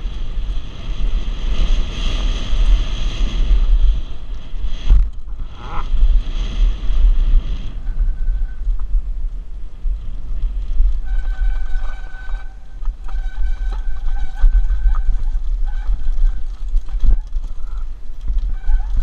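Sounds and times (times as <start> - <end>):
bike rattling over trail: 0.0 - 19.0
wind rushing over camera: 0.0 - 19.0
high squeal: 7.6 - 8.8, 11.0 - 17.9.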